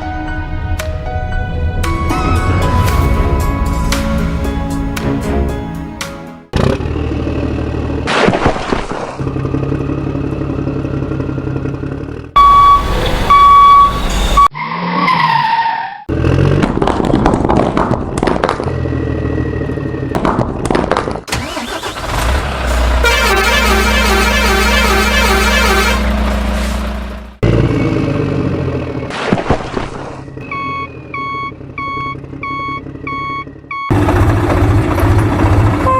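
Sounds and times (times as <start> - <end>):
vehicle engine rumbling: 0.0 - 14.6, 16.1 - 35.9
loud horn blasts: 22.9 - 26.8.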